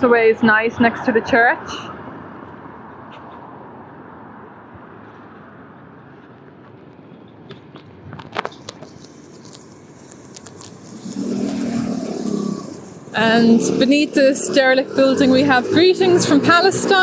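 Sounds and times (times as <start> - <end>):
street traffic rumble: 0.0 - 17.0
low drone: 10.6 - 17.0.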